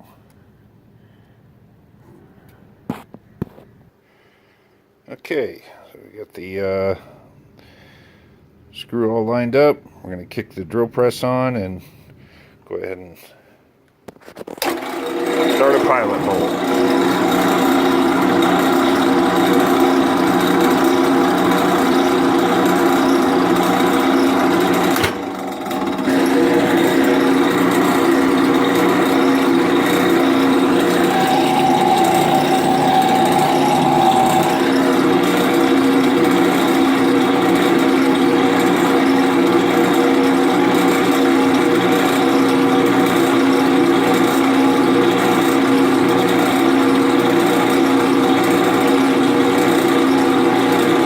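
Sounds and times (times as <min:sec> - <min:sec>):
drill press motor drilling: 0:14.6 - 0:51.0
higher whine: 0:21.8 - 0:37.4.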